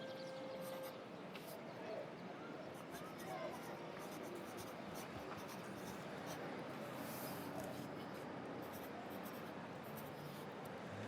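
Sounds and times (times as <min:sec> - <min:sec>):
pencil scratching on paper: 0:04.0 - 0:06.4, 0:08.6 - 0:10.4
city traffic hum: 0:09.6 - 0:11.0.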